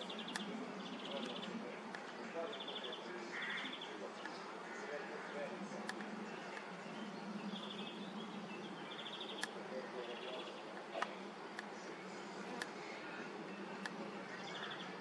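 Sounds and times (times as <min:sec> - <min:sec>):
outdoor background hum: 0:00.0 - 0:15.0
sharp clicks: 0:00.1 - 0:00.6, 0:05.8 - 0:06.7, 0:09.3 - 0:09.6, 0:10.7 - 0:11.8, 0:12.5 - 0:13.0, 0:13.7 - 0:14.1.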